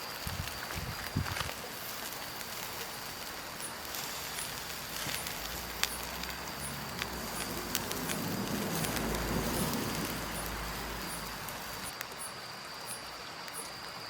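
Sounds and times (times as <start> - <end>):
insect drone: 0.0 - 14.0
low rumble: 4.2 - 11.9.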